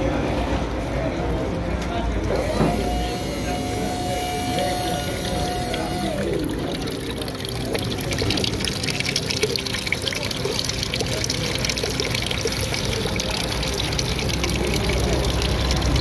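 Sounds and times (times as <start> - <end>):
water splashing down fountain: 2.3 - 16.0.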